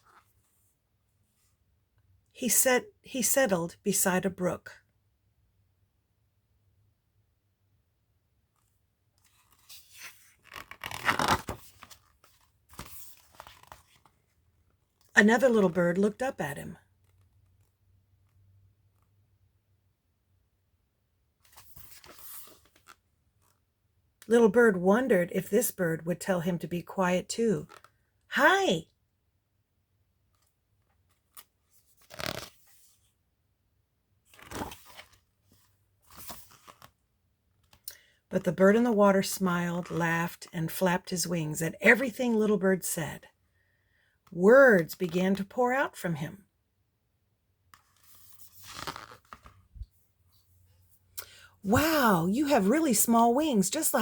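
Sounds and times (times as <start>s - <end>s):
book pages rustling and turning: 0.0s - 1.6s, 8.5s - 15.1s, 17.0s - 18.4s, 21.4s - 23.7s, 27.7s - 28.0s, 30.2s - 33.2s, 34.2s - 37.8s, 47.7s - 51.0s.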